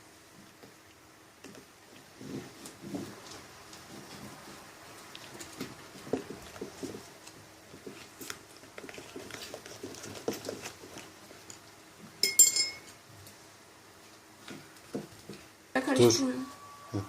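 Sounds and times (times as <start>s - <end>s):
spoons stirring slime: 7.8s - 11.5s
sharp ringing clink: 12.2s - 12.9s.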